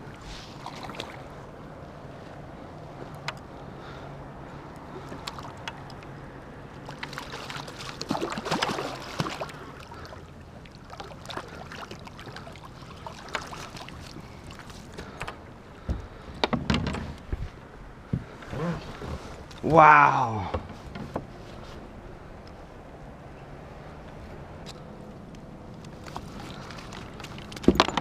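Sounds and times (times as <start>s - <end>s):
water splashing around kayak: 0.0s - 16.3s, 25.9s - 28.0s.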